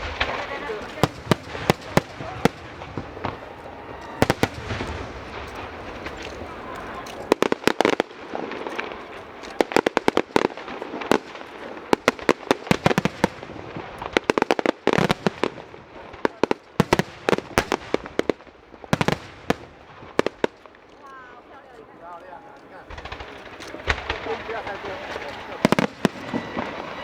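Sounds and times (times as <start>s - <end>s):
fireworks cracking and banging: 0.0s - 27.0s.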